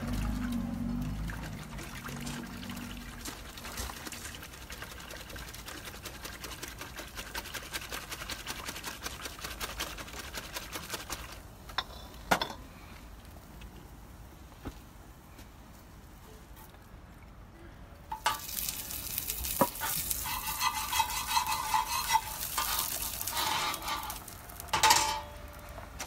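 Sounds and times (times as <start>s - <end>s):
food sizzling: 18.1s - 26.0s.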